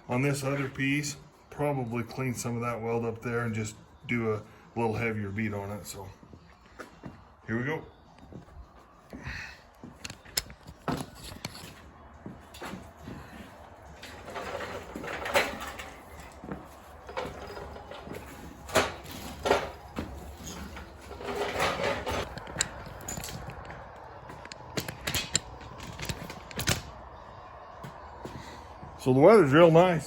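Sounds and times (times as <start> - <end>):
objects scraping: 14.0 - 23.8
objects knocking and clicking: 17.1 - 26.9.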